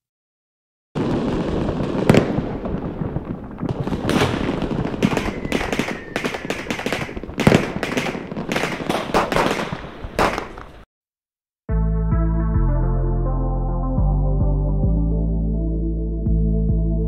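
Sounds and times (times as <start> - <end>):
fireworks bangs and crackles: 1.0 - 10.9
fireworks rumble: 1.0 - 10.9
faint falling whistle: 5.0 - 6.5.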